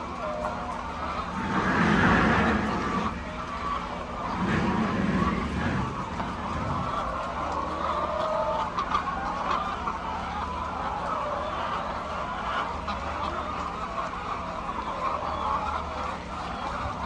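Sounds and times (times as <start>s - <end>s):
steady low hum: 0.0s - 9.2s
hens calling: 0.0s - 17.0s.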